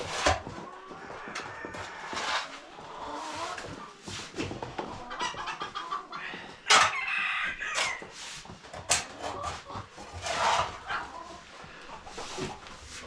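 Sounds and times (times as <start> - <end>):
chickens clucking: 0.0 - 13.0
rooster crowing: 6.7 - 8.0.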